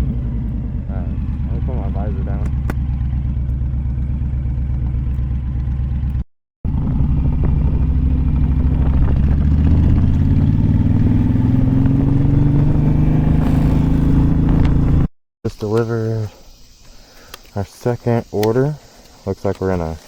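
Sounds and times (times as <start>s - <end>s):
motorcycle engine accelerating: 0.0s - 15.1s.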